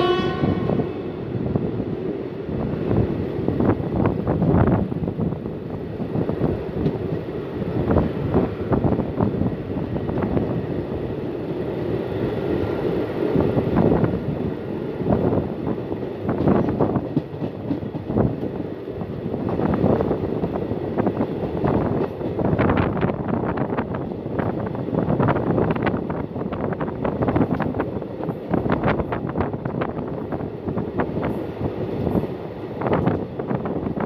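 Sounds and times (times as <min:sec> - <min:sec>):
train coach rumble: 0:00.0 - 0:34.0
wheels clacking over rail joints: 0:15.7 - 0:20.5.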